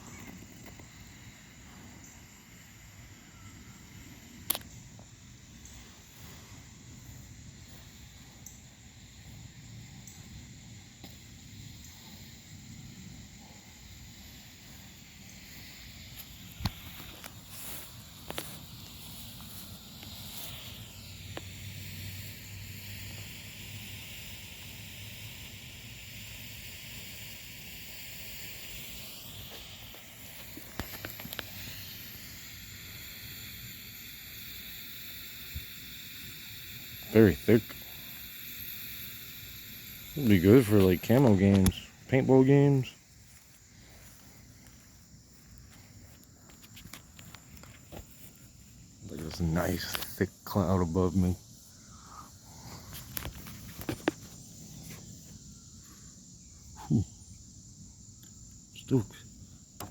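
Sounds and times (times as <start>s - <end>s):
high insect drone: 0.0s - 59.9s
smoke grenade hissing: 0.0s - 59.9s
sharp clicks: 4.4s - 5.0s, 29.5s - 32.4s, 39.9s - 42.2s.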